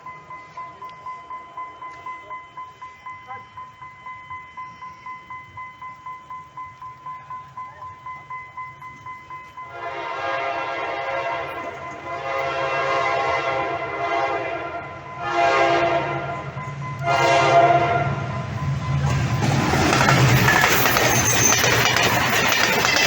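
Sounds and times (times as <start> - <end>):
faint high beeping tone: 0.0 - 9.8, 18.2 - 23.0
train horn blasts: 9.7 - 18.4.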